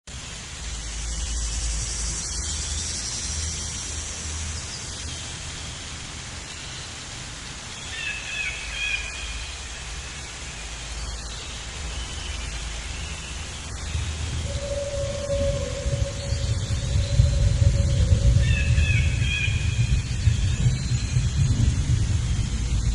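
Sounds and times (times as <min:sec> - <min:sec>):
outdoor rushing noise: 0:13.6 - 0:22.9.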